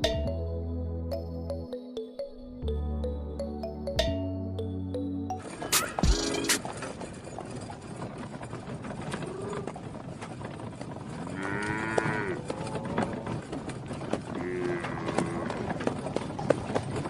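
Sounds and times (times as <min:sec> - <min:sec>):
cow mooing: 0:11.3 - 0:13.2, 0:14.3 - 0:15.8.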